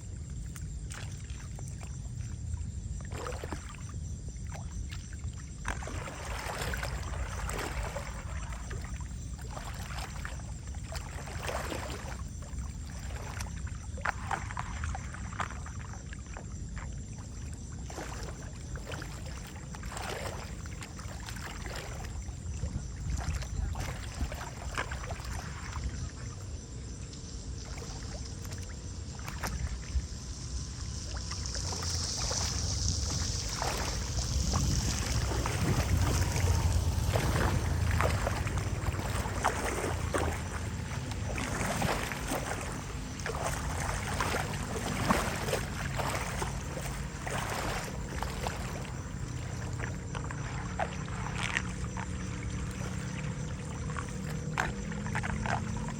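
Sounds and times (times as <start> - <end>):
water splashing and sloshing: 0.0 - 55.9
steady low rumble: 22.0 - 55.9
hiss: 30.7 - 36.7.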